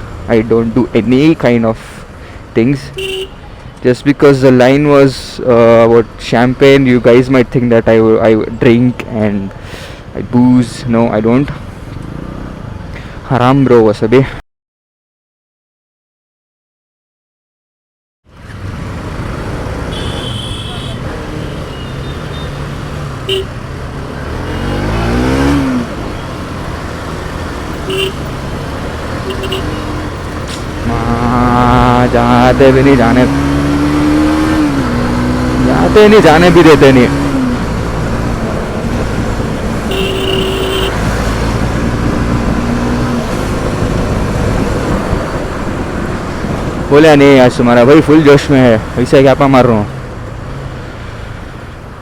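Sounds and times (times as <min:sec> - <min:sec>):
motorcycle engine and road noise: 0:00.0 - 0:14.2, 0:18.3 - 0:52.0
vehicle engine revving: 0:18.4 - 0:46.9.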